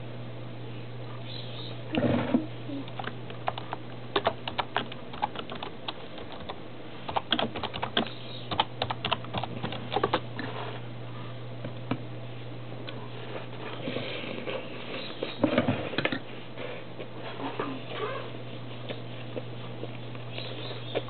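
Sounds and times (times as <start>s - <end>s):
crunchy food being chewed: 18.6s - 21.0s.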